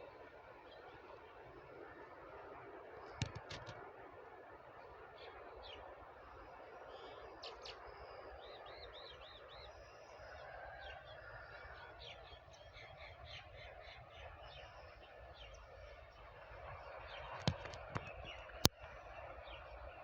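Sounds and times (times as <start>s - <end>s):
sharp click: 3.2s - 3.8s.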